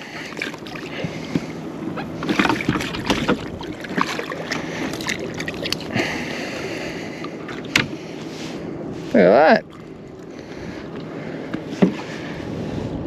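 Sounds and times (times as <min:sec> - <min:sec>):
water sloshing against hull: 0:00.0 - 0:13.0
knocks and taps on kayak: 0:02.2 - 0:04.1, 0:11.5 - 0:12.1.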